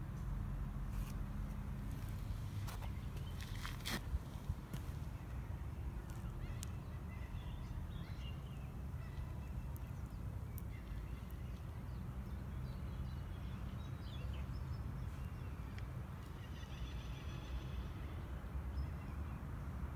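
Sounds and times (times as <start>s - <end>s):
small birds chirping: 2.0s - 3.9s, 4.7s - 17.6s.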